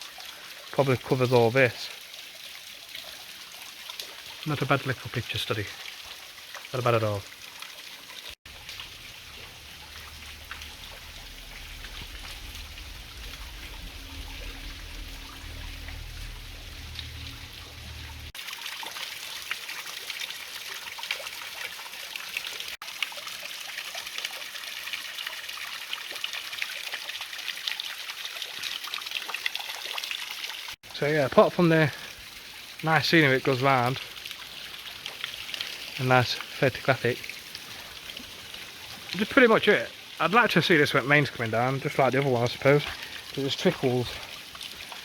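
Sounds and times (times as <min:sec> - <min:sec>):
waterfall splashing over rocks: 0:00.0 - 0:07.4, 0:08.0 - 0:45.0
low rumble: 0:08.5 - 0:18.4.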